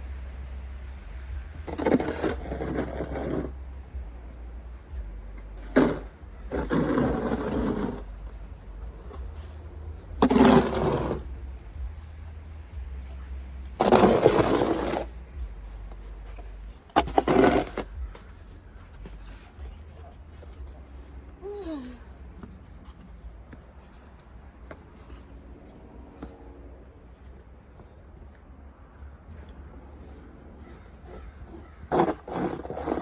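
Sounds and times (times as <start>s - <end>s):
low steady hum: 0.0s - 29.7s
snow shovel scraping snow: 1.6s - 3.5s, 5.6s - 8.1s, 9.0s - 11.5s, 13.8s - 18.3s, 30.7s - 33.0s.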